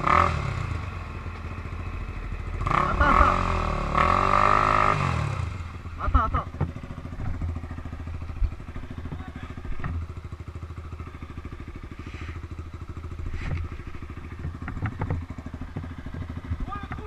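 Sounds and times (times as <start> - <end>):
off-road engine running: 0.0 - 17.0
short knocks and clicks: 14.4 - 17.0.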